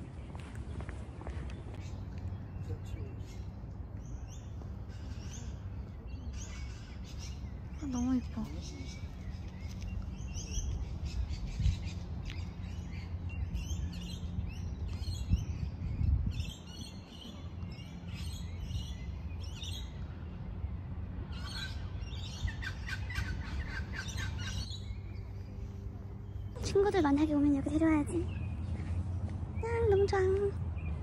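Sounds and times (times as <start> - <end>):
small birds chirping and singing: 0.0 - 31.0.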